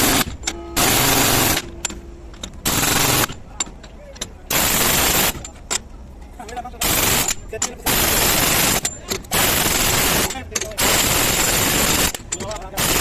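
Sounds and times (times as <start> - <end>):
pneumatic impact wrench hammering: 0.0 - 5.9, 6.8 - 13.0
metallic clicks and knocks: 12.1 - 12.8.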